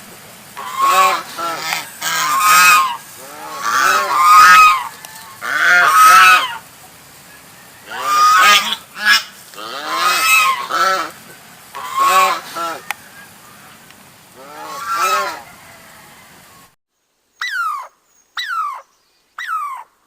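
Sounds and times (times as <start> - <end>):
goose honking: 0.6 - 6.6, 7.8 - 13.8, 14.4 - 15.8.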